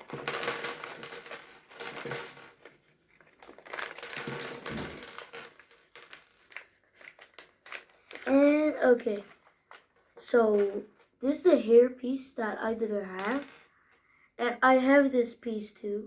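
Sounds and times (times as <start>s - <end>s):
plastic bag rustling: 0.0s - 9.8s
plastic bricks clattering and clicking: 0.0s - 9.9s, 13.2s - 13.7s.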